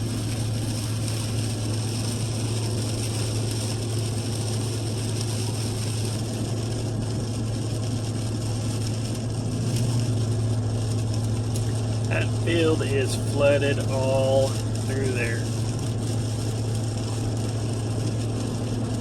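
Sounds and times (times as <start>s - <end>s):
vehicle road and engine noise: 0.0s - 19.0s.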